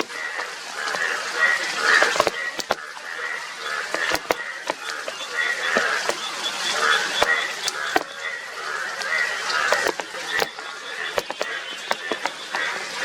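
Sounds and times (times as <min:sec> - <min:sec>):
bullfrogs calling: 0:00.0 - 0:13.0
sharp clicks: 0:02.0 - 0:02.8, 0:03.9 - 0:06.3, 0:11.2 - 0:12.4.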